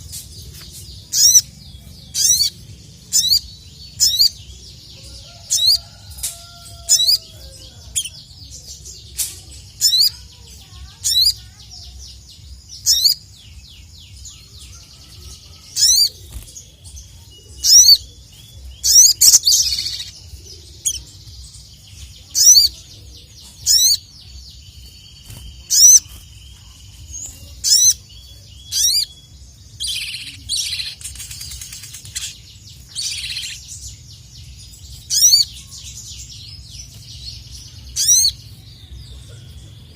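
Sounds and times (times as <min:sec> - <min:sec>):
bird high chirps: 0:00.0 - 0:39.9
bird rapid trills: 0:24.9 - 0:28.0, 0:29.8 - 0:33.6.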